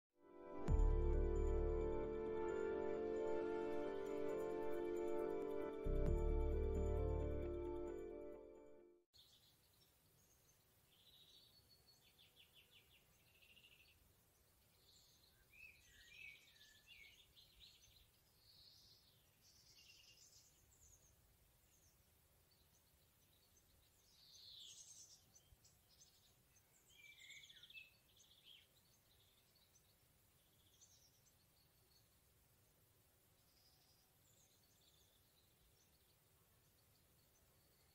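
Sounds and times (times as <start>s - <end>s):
faint woodland birdsong: 9.1s - 37.9s.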